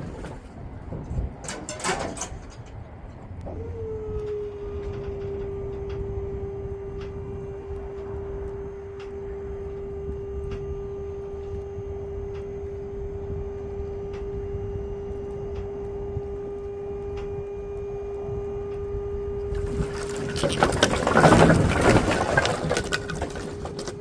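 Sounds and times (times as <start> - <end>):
hydraulic pump humming: 0.0 - 24.0
low rumble: 13.0 - 24.0.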